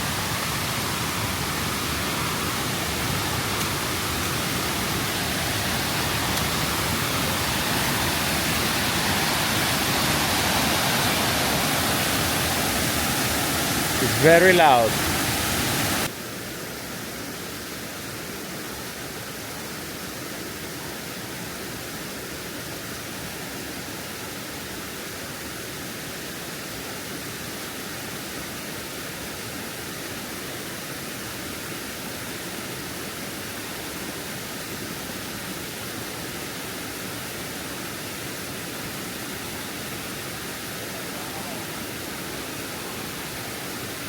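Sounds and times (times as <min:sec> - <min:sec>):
waterfall rushing: 0:00.0 - 0:16.1, 0:27.9 - 0:44.0.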